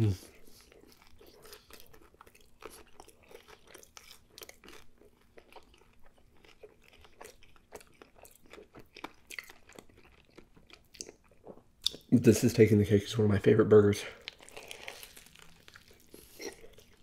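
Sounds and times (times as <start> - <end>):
close chewing: 0.0 - 12.1, 14.1 - 17.0
small crunches: 14.2 - 17.0.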